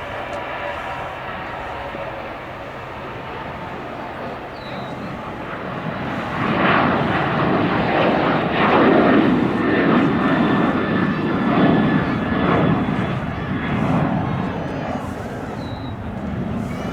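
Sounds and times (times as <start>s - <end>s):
jet airliner passing: 0.0s - 16.9s.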